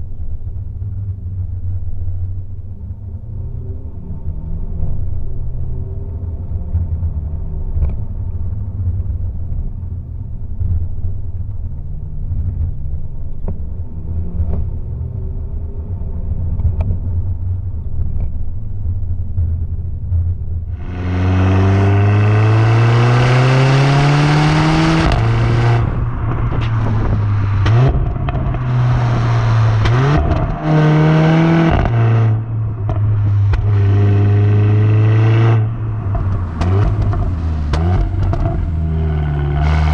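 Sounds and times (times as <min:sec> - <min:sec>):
car engine revving: 0:19.5 - 0:39.9.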